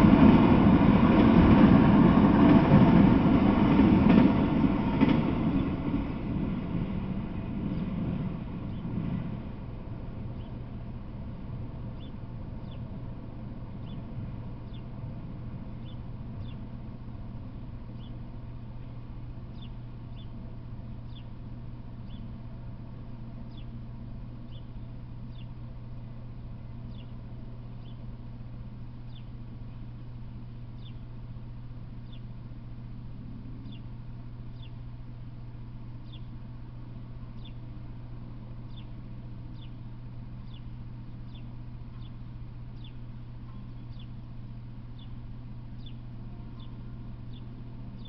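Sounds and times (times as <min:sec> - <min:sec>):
low hum: 0:00.0 - 0:48.0
bird chirping: 0:08.6 - 0:09.0, 0:10.3 - 0:10.6, 0:11.9 - 0:13.0, 0:13.7 - 0:15.0, 0:15.6 - 0:16.7, 0:17.9 - 0:18.3, 0:19.5 - 0:20.4, 0:21.0 - 0:21.4, 0:22.0 - 0:22.4, 0:23.4 - 0:23.8, 0:24.4 - 0:25.6, 0:26.8 - 0:28.1, 0:29.0 - 0:29.4, 0:30.7 - 0:31.1, 0:32.0 - 0:32.4, 0:33.6 - 0:34.8, 0:36.0 - 0:36.4, 0:37.3 - 0:37.7, 0:38.6 - 0:44.3, 0:44.9 - 0:48.0.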